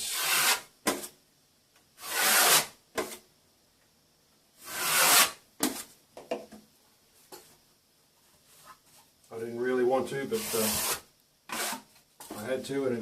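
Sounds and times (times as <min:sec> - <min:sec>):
plastering knife scraping plaster: 0:00.1 - 0:01.1, 0:04.6 - 0:05.9, 0:10.4 - 0:12.0.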